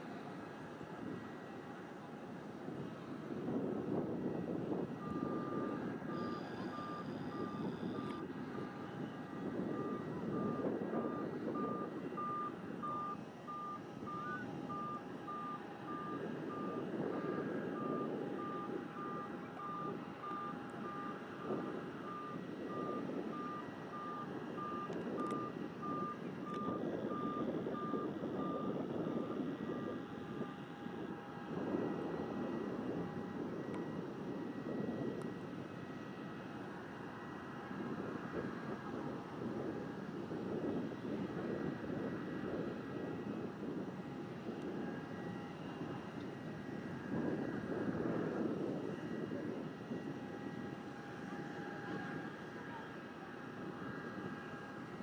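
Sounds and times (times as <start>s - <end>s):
wind rumble on microphone: 0.0s - 55.0s
reversing alarm beeping: 4.1s - 35.4s.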